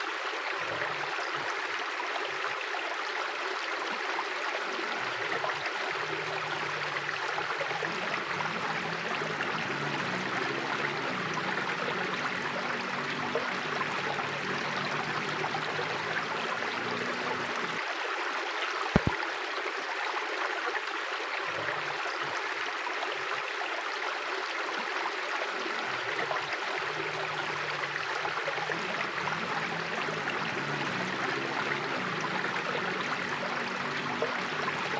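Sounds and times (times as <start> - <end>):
river water flowing over stones: 0.0 - 34.9
sharp click: 19.0 - 19.2.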